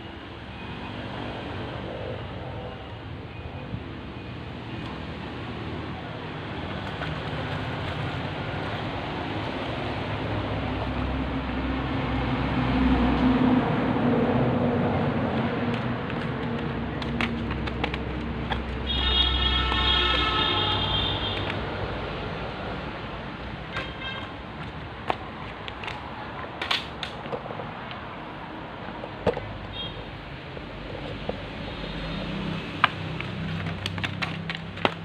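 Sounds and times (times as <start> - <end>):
motor vehicle rumble: 1.2 - 35.0
vehicle horn: 18.8 - 21.5, 23.7 - 24.3, 29.7 - 30.1.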